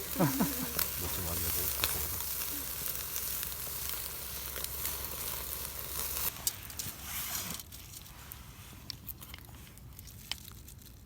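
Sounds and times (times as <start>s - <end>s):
meat sizzling on a grill: 0.0s - 7.4s.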